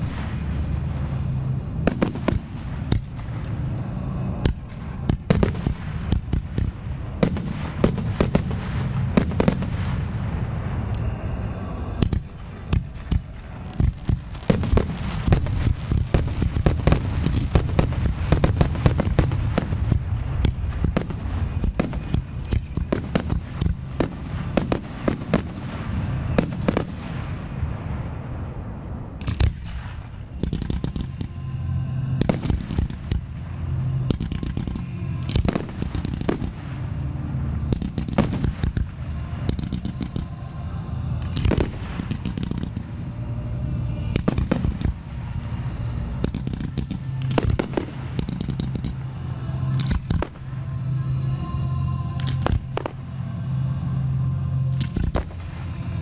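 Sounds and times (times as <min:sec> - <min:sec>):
fireworks bursting and crackling: 0:00.0 - 0:56.0
music playing: 0:00.0 - 0:56.0.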